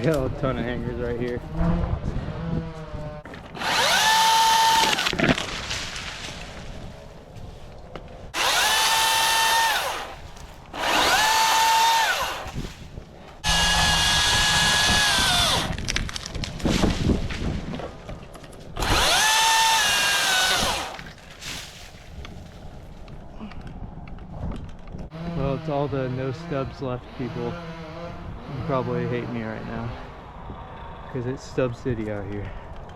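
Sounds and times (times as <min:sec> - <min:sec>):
chainsaw cutting tree limbs: 0:03.3 - 0:06.6, 0:08.3 - 0:17.5, 0:18.8 - 0:22.0, 0:25.1 - 0:30.5.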